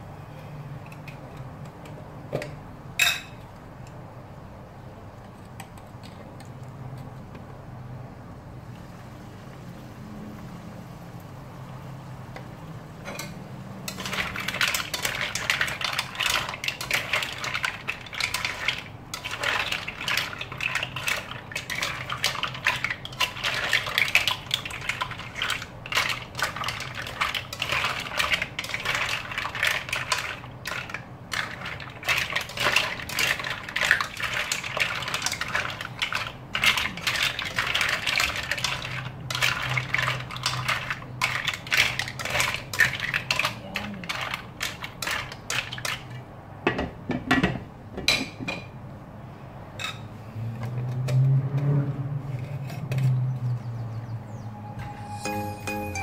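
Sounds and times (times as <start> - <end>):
mussel shells clattering in a pan: 13.1 - 46.2.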